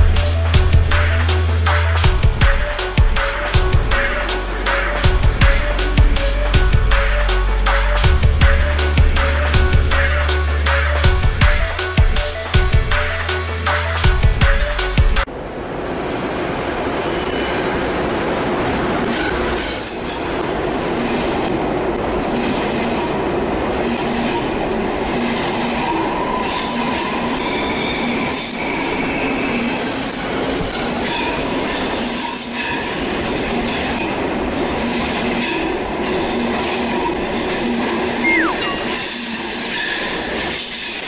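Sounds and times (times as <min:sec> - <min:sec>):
train wheels rumbling on rails: 0:00.0 - 0:38.2, 0:39.2 - 0:41.0
thin high steady tones: 0:38.2 - 0:39.4.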